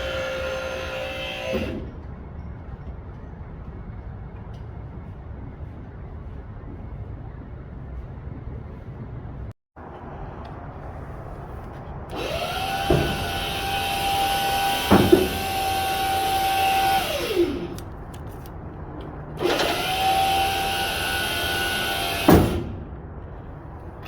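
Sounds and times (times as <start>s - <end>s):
sharp knocks: 14.8s - 15.4s.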